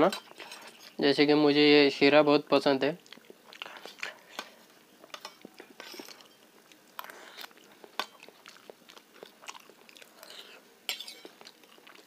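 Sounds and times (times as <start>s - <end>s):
chewing and mouth smacks: 3.0s - 12.0s.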